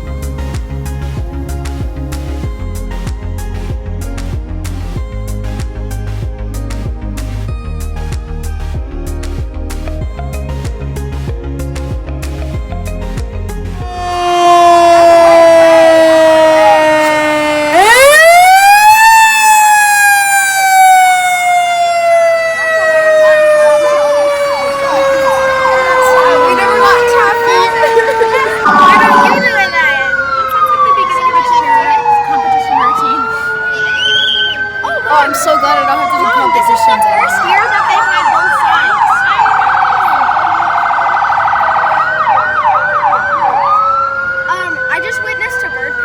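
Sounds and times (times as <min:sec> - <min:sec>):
fire engine siren wailing: 0:13.7 - 0:46.0.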